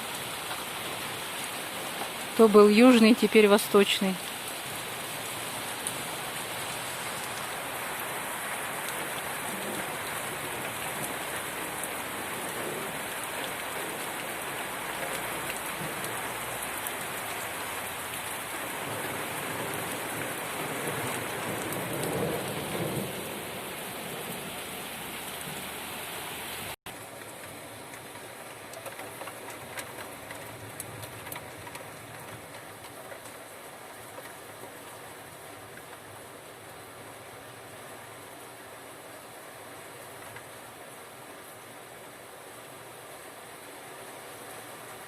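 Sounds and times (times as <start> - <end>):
heavy rain falling: 0.0 - 45.0.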